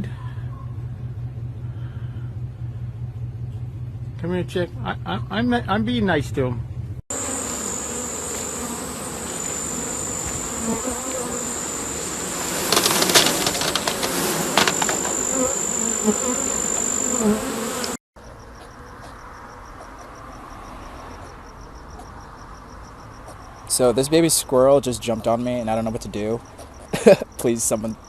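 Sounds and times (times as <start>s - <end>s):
insect buzzing: 7.1s - 21.6s
insects chirping rhythmically: 7.2s - 12.8s, 14.4s - 28.0s
sharp clicks and knocks: 12.7s - 15.1s.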